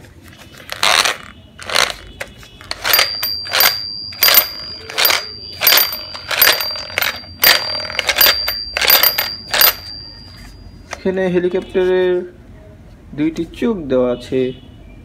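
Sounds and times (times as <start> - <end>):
toy helicopter clicking and rattling: 0.7 - 2.0, 2.7 - 10.0
thin high-pitched tone: 2.9 - 11.4.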